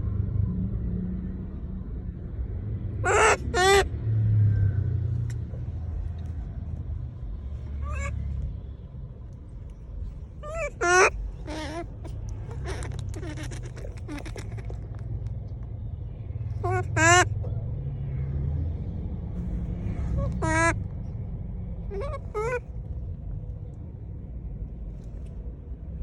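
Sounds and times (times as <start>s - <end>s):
steady low rumble: 0.0s - 26.0s
monkey honking calls: 3.0s - 3.9s, 7.8s - 8.2s, 10.4s - 14.9s, 16.6s - 17.4s, 20.2s - 20.8s, 21.9s - 22.6s.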